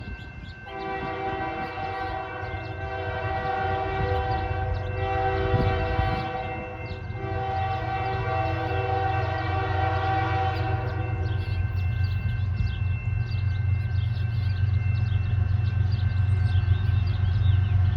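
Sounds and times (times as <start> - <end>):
locomotive air horn blasts: 0.7 - 11.2.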